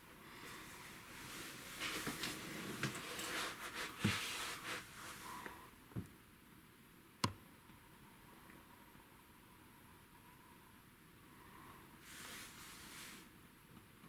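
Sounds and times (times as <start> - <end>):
close rustling and crackling: 0.4 - 5.5.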